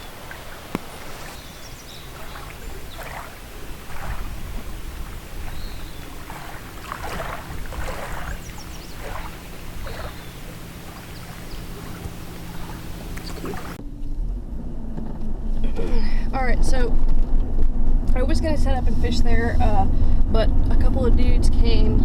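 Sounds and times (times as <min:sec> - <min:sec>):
waves lapping against a dock: 0:00.0 - 0:13.8.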